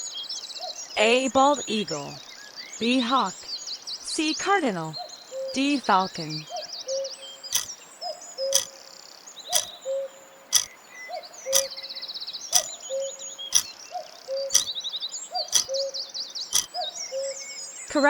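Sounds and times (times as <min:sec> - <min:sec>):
songbirds chirping and trilling: 0:00.0 - 0:18.0.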